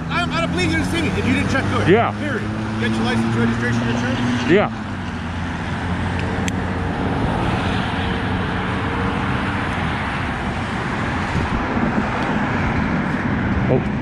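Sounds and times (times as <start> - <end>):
highway traffic noise: 0.0 - 14.0.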